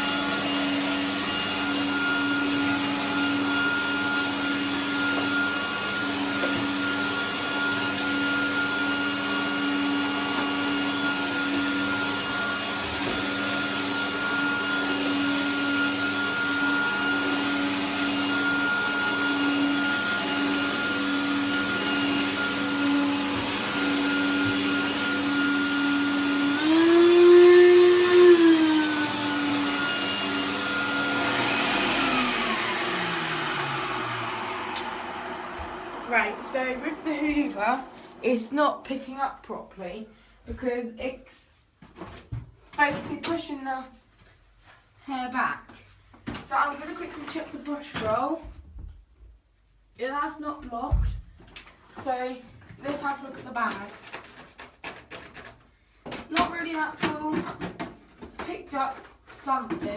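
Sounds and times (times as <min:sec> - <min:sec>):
vacuum cleaner motor whining: 0:00.0 - 0:39.2.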